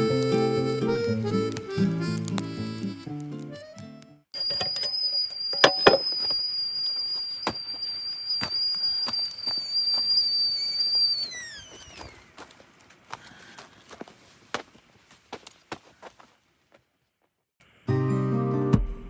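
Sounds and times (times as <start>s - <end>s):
high steady whistle: 4.4s - 12.3s.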